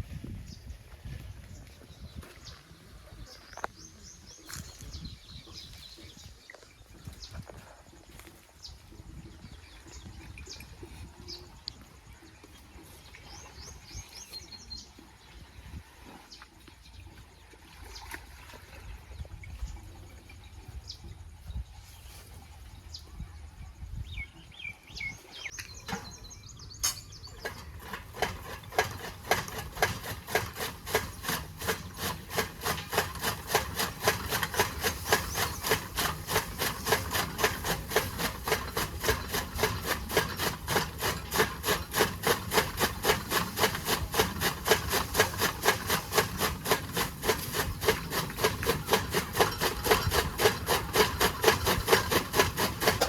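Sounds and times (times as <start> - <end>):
chaff-cutter machine clattering: 25.5 - 53.0.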